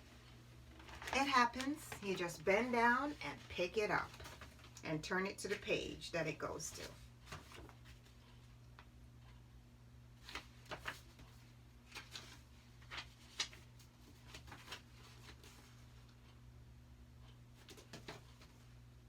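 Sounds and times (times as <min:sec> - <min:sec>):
low steady hum: 0:00.0 - 0:19.0
book pages rustling: 0:00.1 - 0:04.8, 0:06.7 - 0:08.4, 0:10.2 - 0:16.2, 0:17.2 - 0:18.7.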